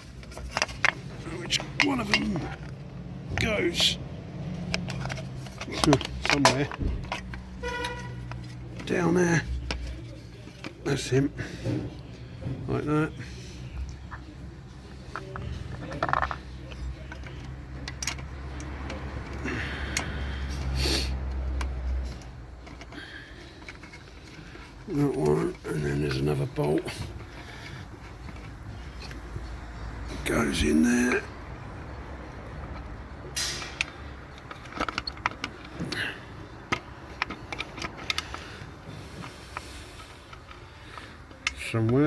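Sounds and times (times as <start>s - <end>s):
metal scraping: 3.4s - 12.0s
metallic clicks and clinks: 15.0s - 20.2s.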